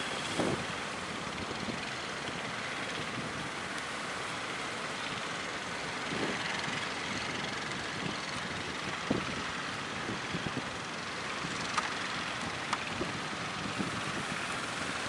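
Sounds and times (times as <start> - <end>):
strong wind: 0.0 - 2.0, 2.8 - 3.7, 5.9 - 15.0
waves rushing: 0.0 - 15.0.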